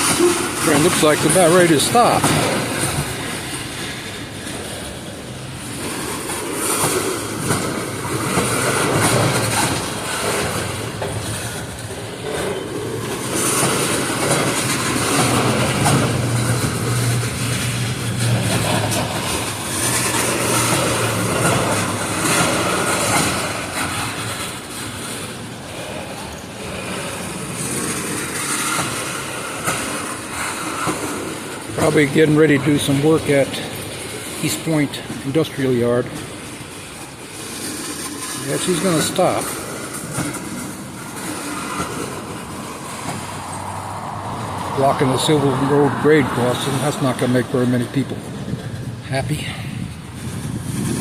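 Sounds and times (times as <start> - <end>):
high wheel squeal: 0.0 - 29.6
train wheels clacking on rail joints: 0.0 - 51.0.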